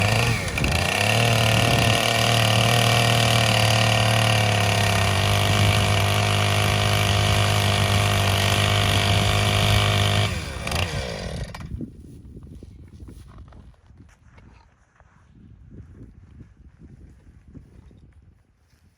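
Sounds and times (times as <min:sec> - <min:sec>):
chainsaw engine running: 0:00.0 - 0:11.8.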